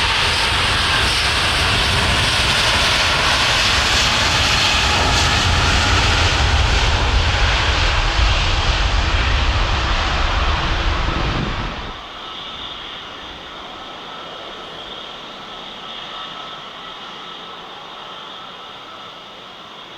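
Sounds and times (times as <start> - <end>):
jet airliner engines rumbling: 0.0 - 19.9.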